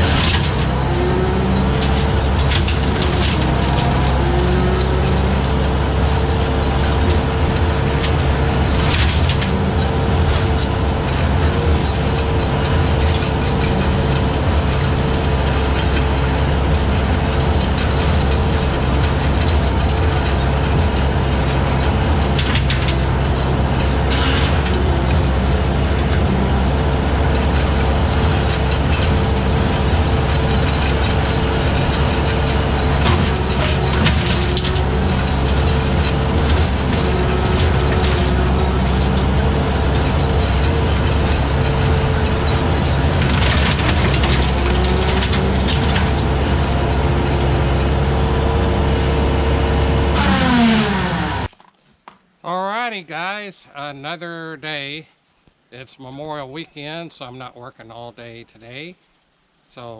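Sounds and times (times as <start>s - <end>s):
skid steer engine running: 0.0s - 51.6s.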